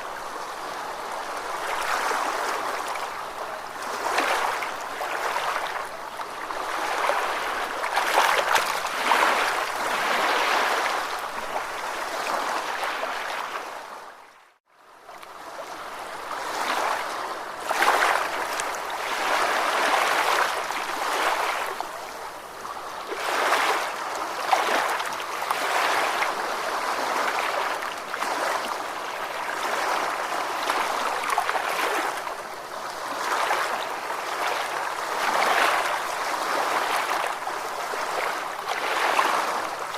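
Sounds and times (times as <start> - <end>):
ocean waves washing on shore: 0.0 - 39.9.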